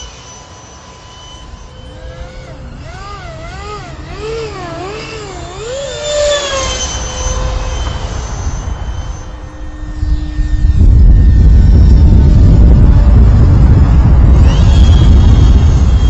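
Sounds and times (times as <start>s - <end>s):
model jet fans whining: 0.0s - 16.0s
loud low rushing noise: 7.3s - 16.0s.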